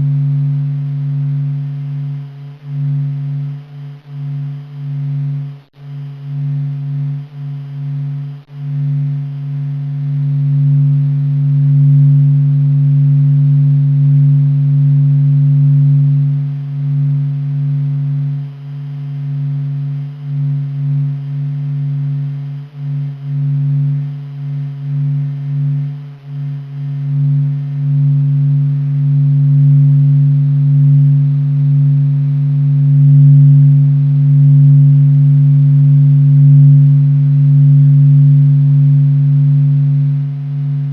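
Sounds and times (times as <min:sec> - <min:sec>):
deep humming drone: 0:00.0 - 0:40.9.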